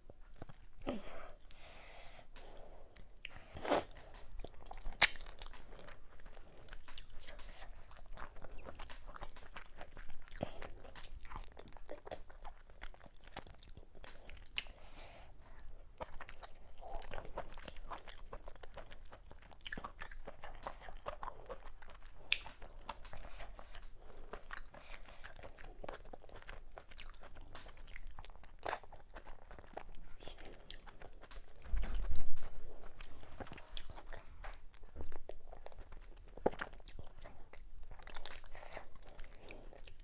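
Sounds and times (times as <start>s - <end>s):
crunchy chewing and biting: 3.4s - 14.9s
wet mouth smacks: 4.9s - 5.6s.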